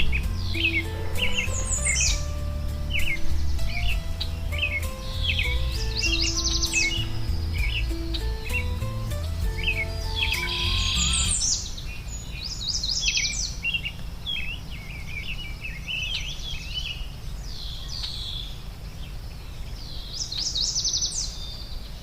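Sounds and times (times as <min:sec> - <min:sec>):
soft musical tones: 0:00.0 - 0:11.6
songbirds chirping and trilling: 0:00.0 - 0:22.0.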